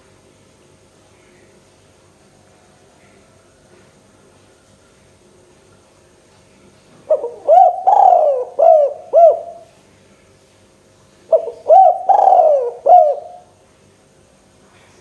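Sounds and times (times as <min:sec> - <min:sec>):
dove cooing: 0:07.1 - 0:09.7, 0:11.3 - 0:13.5.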